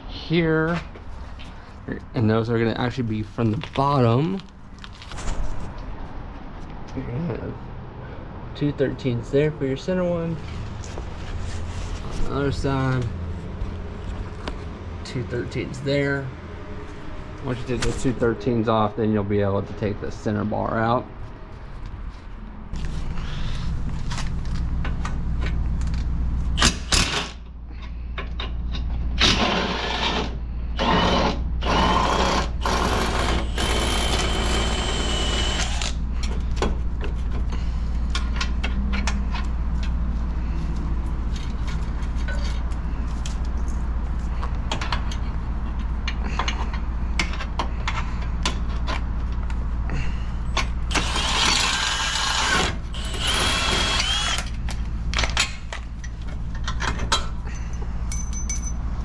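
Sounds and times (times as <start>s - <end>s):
power tool motor whining: 30.8s - 36.0s, 50.9s - 54.6s.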